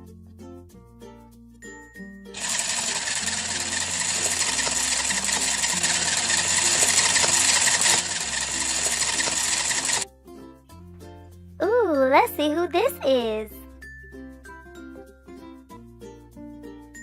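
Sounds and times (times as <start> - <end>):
children's background music: 0.9 - 17.0
toy appliance whirring buzz: 2.4 - 10.0.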